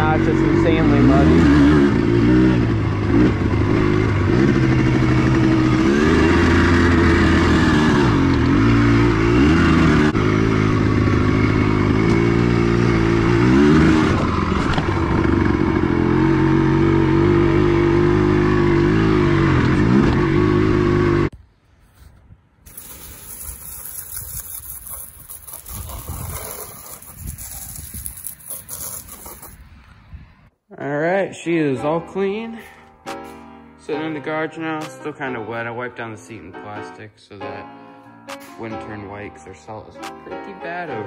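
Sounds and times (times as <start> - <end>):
two-stroke motorcycle engine revving: 0.0 - 21.3, 22.7 - 29.6.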